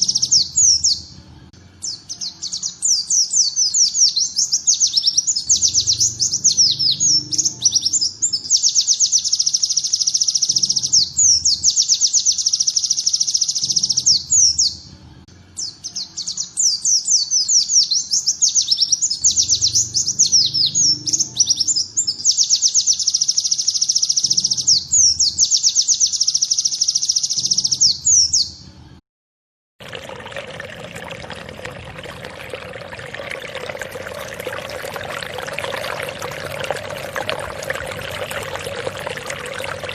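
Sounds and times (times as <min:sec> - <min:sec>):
running water: 0:29.8 - 0:39.9.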